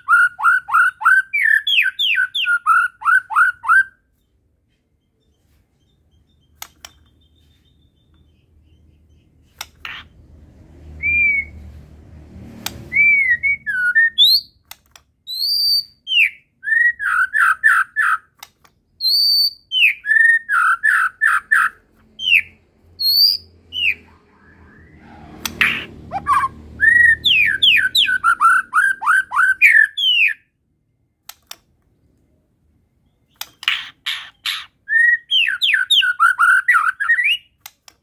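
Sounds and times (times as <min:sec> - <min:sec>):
songbird whistling: 0:00.0 - 0:04.4, 0:11.0 - 0:11.6, 0:12.9 - 0:14.6, 0:15.3 - 0:18.3, 0:19.0 - 0:25.0, 0:25.6 - 0:30.5, 0:34.5 - 0:37.6.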